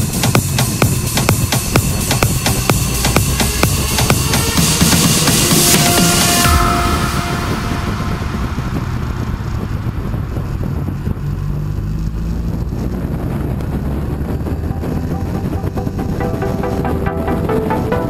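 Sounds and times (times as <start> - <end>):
wind rushing over microphone: 0.0 - 18.0
motorcycle engine running: 8.7 - 16.9.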